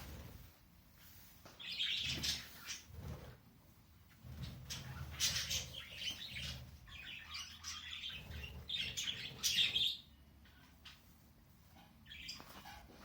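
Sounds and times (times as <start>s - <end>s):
budgies chattering: 1.6s - 3.0s, 4.4s - 10.7s, 12.0s - 13.0s.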